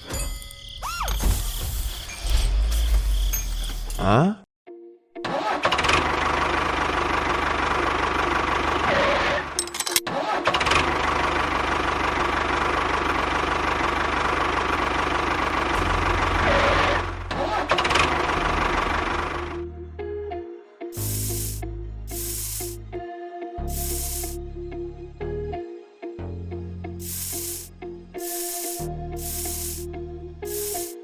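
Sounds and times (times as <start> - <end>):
small motor running: 21.0 - 22.8, 23.7 - 24.4, 27.0 - 29.8, 30.4 - 31.0.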